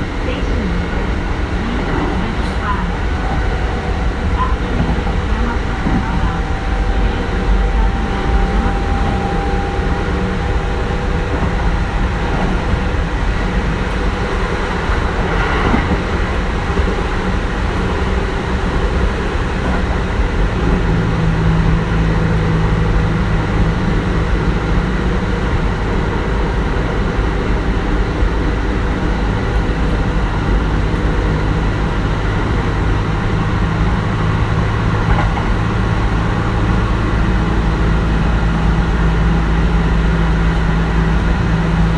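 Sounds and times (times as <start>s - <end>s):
steady low hum: 0.0s - 22.4s
electric train inverter tones: 0.0s - 41.9s
train wheels rumbling on rail: 0.0s - 41.9s.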